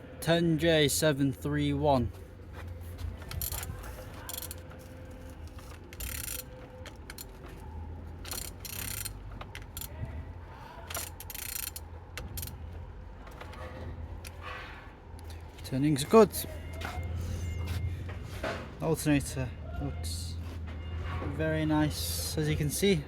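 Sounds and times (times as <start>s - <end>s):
engine rasping with ratchet clicks: 2.9s - 15.7s.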